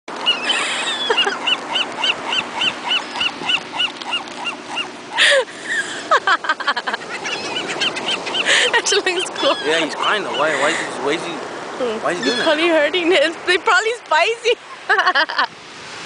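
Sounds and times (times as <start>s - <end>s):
gull yelping calls: 0.2s - 5.4s, 6.9s - 10.9s, 12.1s - 12.7s
harsh gull squawk: 0.2s - 5.4s, 6.9s - 10.9s, 12.1s - 12.6s.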